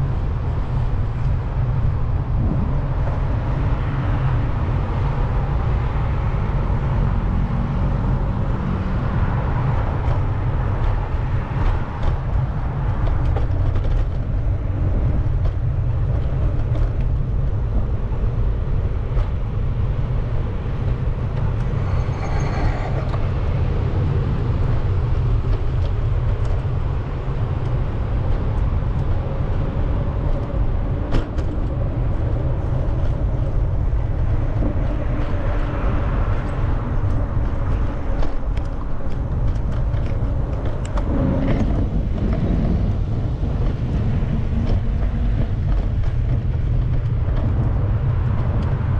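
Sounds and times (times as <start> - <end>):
street traffic: 0.0 - 48.9
wind buffeting microphone: 0.0 - 48.9
high-pitched squeal: 21.7 - 23.3.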